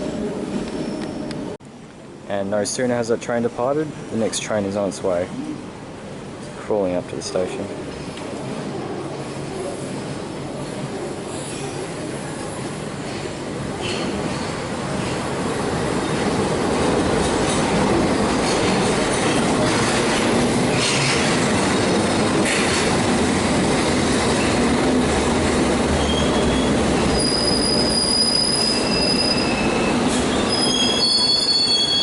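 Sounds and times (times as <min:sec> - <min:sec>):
train wheels rumbling on rail: 0:07.7 - 0:32.0
high squealing tones: 0:26.0 - 0:32.0.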